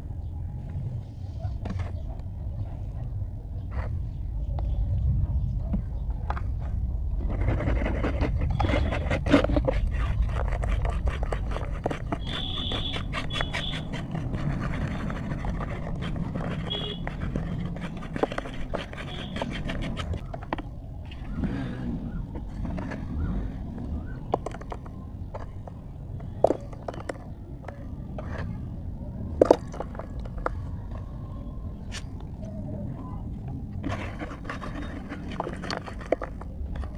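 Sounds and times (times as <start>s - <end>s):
steady low rumble: 0.0s - 11.1s.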